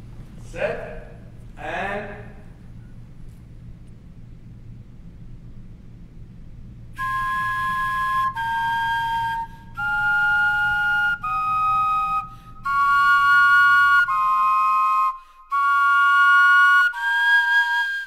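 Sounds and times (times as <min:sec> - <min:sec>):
vegetable wind instruments playing: 0:07.0 - 0:18.0.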